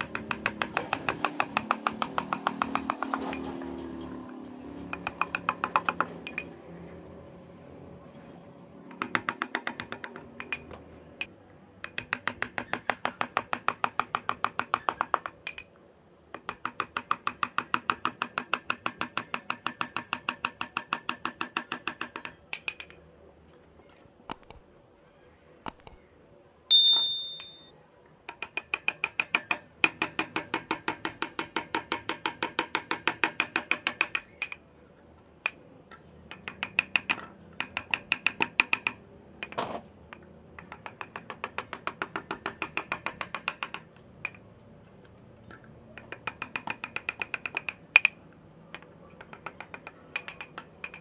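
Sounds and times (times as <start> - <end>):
taps on wood while carving: 0.0 - 3.5, 4.9 - 6.5, 8.9 - 15.7, 16.3 - 23.0, 24.3 - 24.6, 25.6 - 26.0, 28.3 - 34.6, 35.4 - 44.4, 45.5 - 51.0
metallic clink: 26.7 - 27.7.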